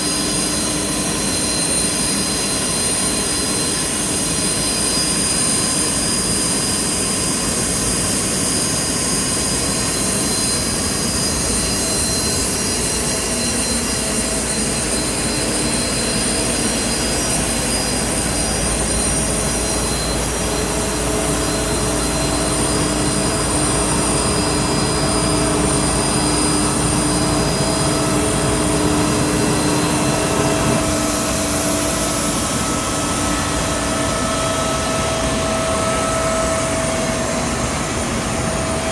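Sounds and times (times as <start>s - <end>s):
jet turbine whine and rumble: 0.0s - 38.9s
lower engine tones: 18.0s - 38.9s.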